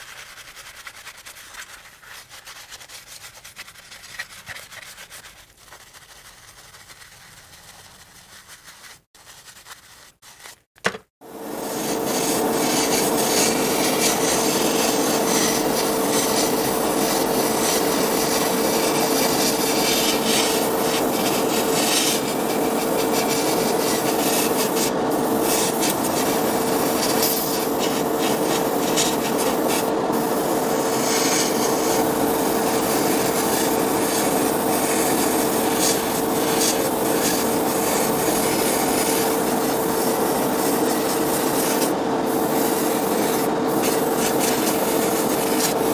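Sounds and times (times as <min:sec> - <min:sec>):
steady hum: 0:11.3 - 0:45.9.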